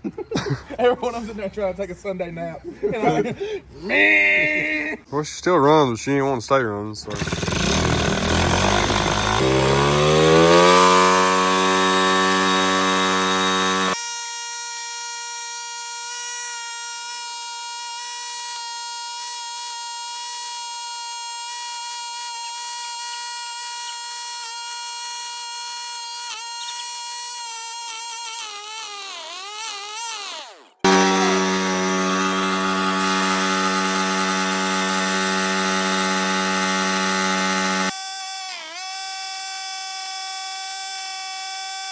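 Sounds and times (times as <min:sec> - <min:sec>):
dirt bike engine screaming: 0:07.1 - 0:14.0, 0:28.6 - 0:37.9.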